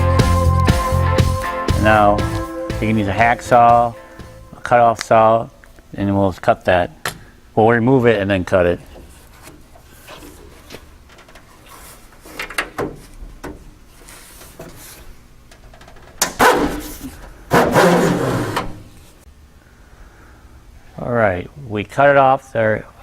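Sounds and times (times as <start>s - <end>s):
rubber strip dragging scrapes: 16.4s - 18.8s.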